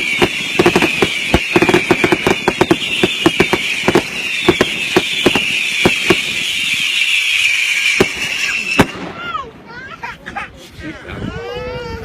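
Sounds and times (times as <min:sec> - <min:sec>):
whistling fireworks: 0:00.0 - 0:09.7
firework bangs and crackles: 0:00.0 - 0:10.3.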